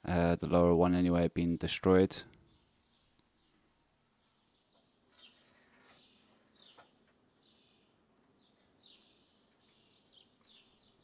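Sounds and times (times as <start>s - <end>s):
faint bird chirps: 2.4s - 11.0s.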